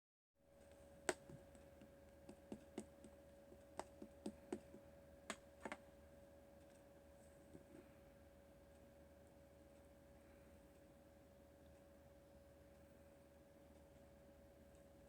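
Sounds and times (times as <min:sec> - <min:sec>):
faint steady hum: 0:00.4 - 0:15.0
faint clicks and taps: 0:00.6 - 0:05.9.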